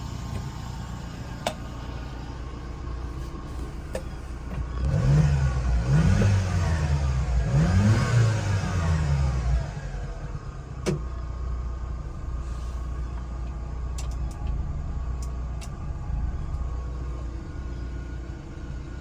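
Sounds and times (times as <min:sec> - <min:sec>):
truck engine idling: 0:00.0 - 0:04.9, 0:09.2 - 0:19.0.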